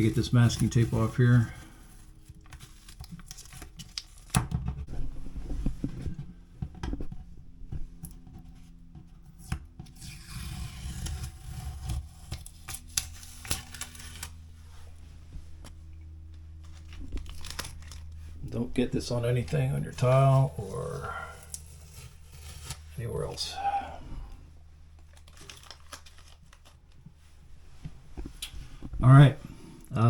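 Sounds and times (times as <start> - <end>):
rustling and scratching: 0.0 - 23.8
masking tape peeling: 9.4 - 14.4, 16.7 - 18.2.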